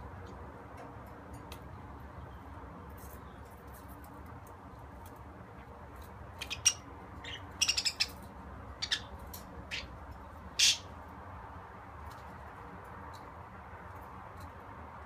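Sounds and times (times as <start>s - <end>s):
budgerigar chirping: 6.4s - 8.2s, 8.8s - 9.1s, 9.7s - 9.9s, 10.6s - 10.9s.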